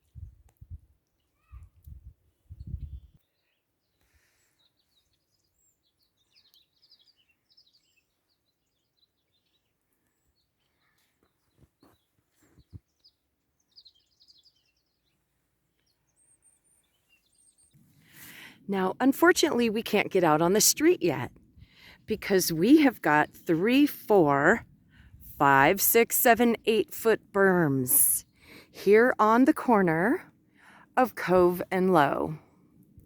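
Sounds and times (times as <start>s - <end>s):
small birds chirping: 1.1s - 18.5s.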